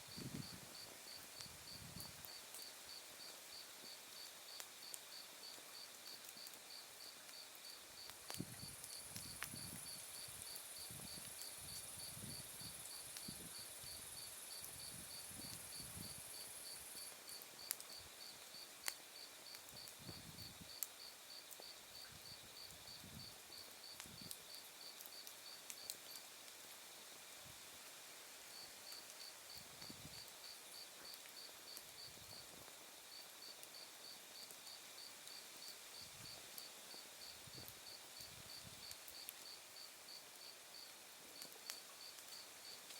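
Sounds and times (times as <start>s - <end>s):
wood fire crackling: 0.0s - 26.8s, 27.7s - 42.9s
crickets chirping: 6.7s - 25.9s.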